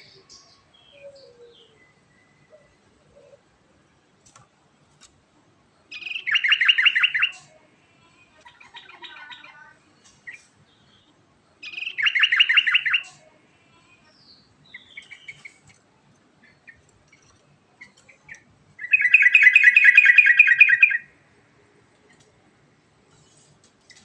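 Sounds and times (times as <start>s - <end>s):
bird chirps: 0.0s - 3.4s, 5.9s - 7.5s, 8.5s - 13.2s, 14.0s - 15.7s, 16.4s - 21.1s
bird trilling: 5.9s - 7.4s, 11.6s - 13.1s, 16.6s - 21.1s.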